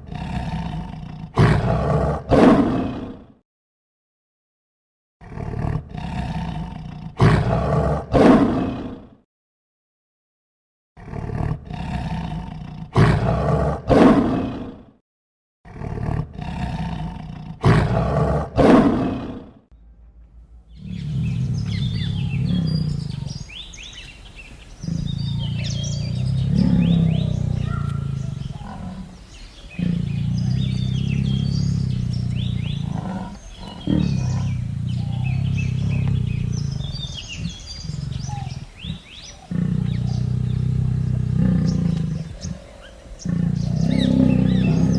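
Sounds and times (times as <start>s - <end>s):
large animal roaring: 0.0s - 3.3s, 5.2s - 9.1s, 11.0s - 14.9s, 15.7s - 24.1s, 24.8s - 44.9s
birds chirping: 19.7s - 44.9s
long low drawn-out calls: 19.8s - 44.9s.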